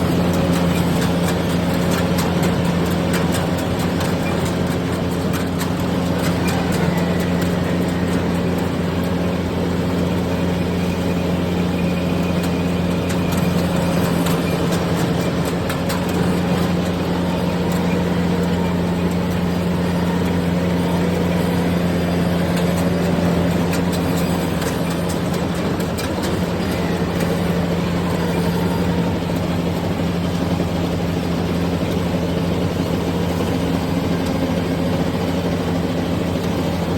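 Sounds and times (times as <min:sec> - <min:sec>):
combine harvester engine drone: 0:00.0 - 0:36.9.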